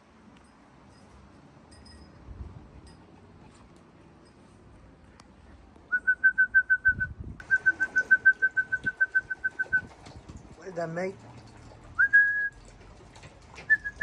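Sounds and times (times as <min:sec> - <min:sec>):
person whistling short notes: 0:05.9 - 0:09.9, 0:12.0 - 0:12.6.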